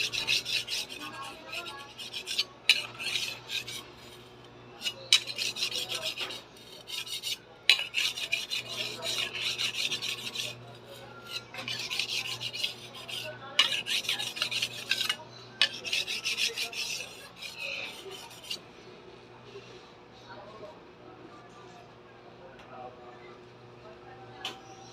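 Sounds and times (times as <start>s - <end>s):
knife scraping on sharpener: 0.0s - 18.6s.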